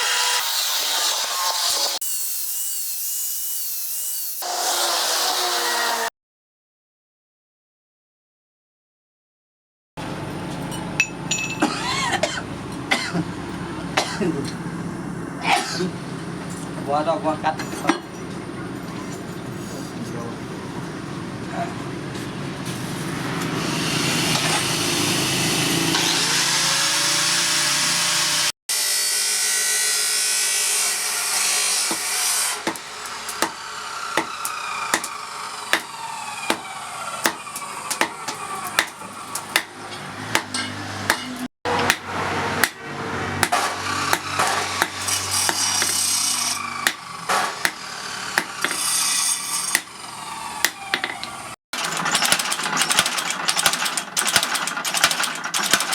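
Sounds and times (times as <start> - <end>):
power tool grinding steel: 0.0 - 6.1, 22.7 - 55.9.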